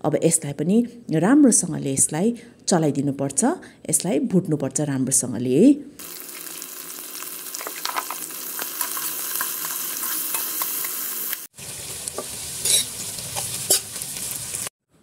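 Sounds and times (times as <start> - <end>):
food sizzling in hot oil: 6.0 - 14.7
spatula scraping a metal pot: 12.6 - 13.9.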